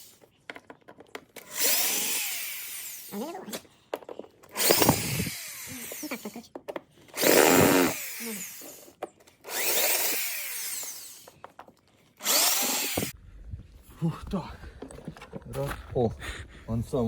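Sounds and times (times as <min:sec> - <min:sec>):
cordless drill running: 0:01.4 - 0:03.2, 0:04.5 - 0:06.3, 0:07.2 - 0:11.4, 0:12.2 - 0:13.1.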